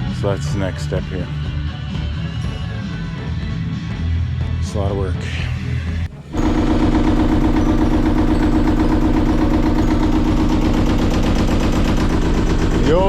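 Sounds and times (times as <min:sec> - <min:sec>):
diesel boat engine idling: 0:06.1 - 0:13.0.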